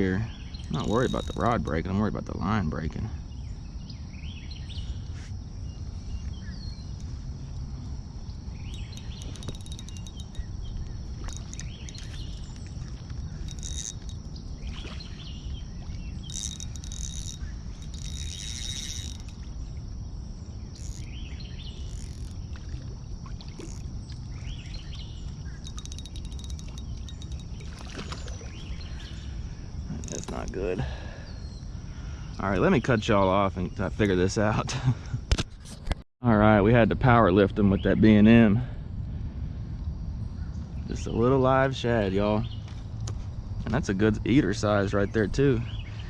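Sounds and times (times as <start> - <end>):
birds chirping: 0.0 - 22.5, 23.5 - 34.5
wind rumble on microphone: 0.0 - 46.0.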